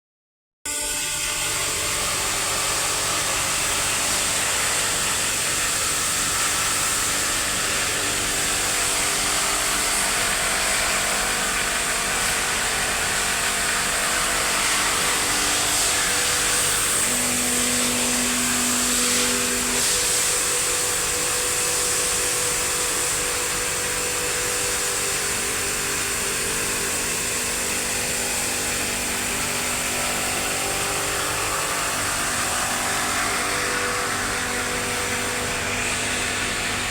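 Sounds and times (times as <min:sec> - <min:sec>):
machine hissing: 0:01.0 - 0:23.2.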